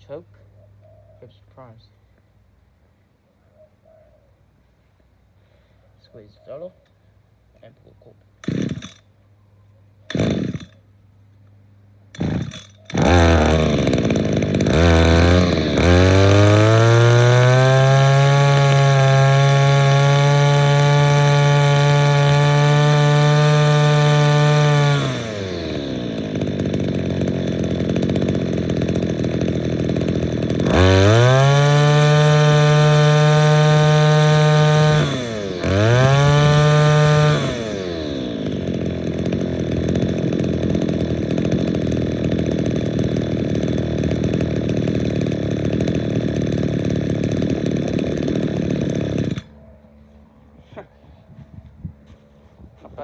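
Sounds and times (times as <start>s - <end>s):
recoil starter pulls: 8.4s - 9.0s, 10.1s - 10.8s, 12.1s - 49.5s
string trimmer engine revving: 8.4s - 9.0s, 10.1s - 10.8s, 12.1s - 49.6s.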